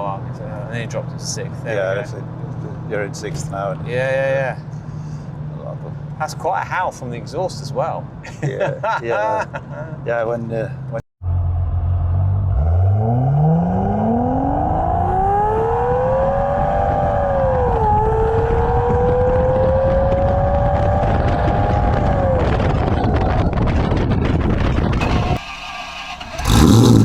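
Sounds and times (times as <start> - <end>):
car engine accelerating hard: 11.2 - 23.9, 24.5 - 27.0.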